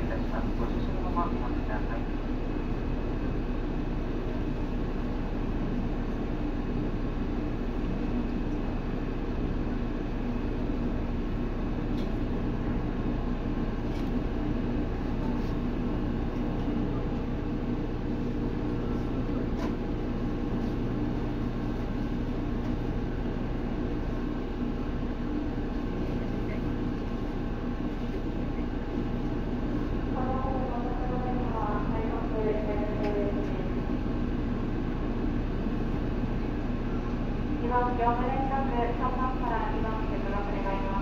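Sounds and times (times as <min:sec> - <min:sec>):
electric train interior hum: 0:00.0 - 0:41.0.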